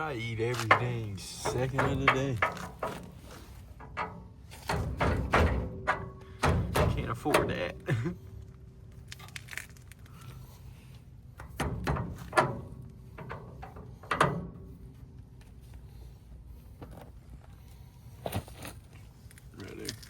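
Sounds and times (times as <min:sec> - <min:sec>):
low steady hum: 0:00.0 - 0:20.0
tools knocking on metal: 0:00.6 - 0:03.1, 0:03.8 - 0:07.6.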